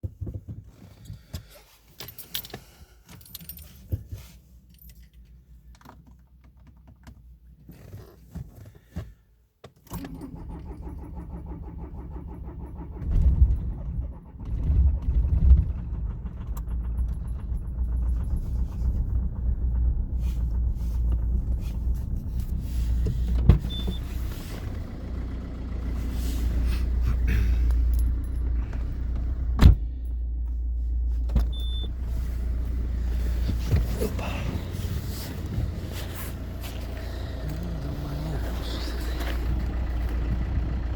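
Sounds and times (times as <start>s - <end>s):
keys jingling: 2.0s - 5.3s
diesel engine running roughly: 10.2s - 30.6s, 31.5s - 40.9s.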